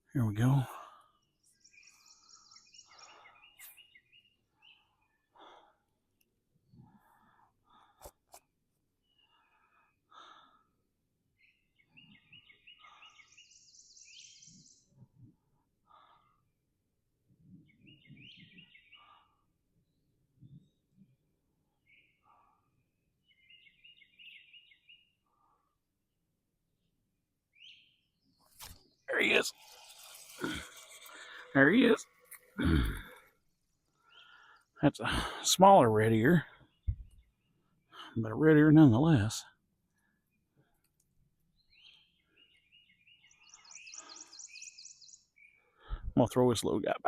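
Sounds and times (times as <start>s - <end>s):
faint birdsong: 0.0s - 47.0s
man breathing heavily: 5.2s - 6.1s, 6.8s - 8.3s, 9.2s - 10.9s, 15.8s - 16.6s
high bird chirps: 41.6s - 45.7s.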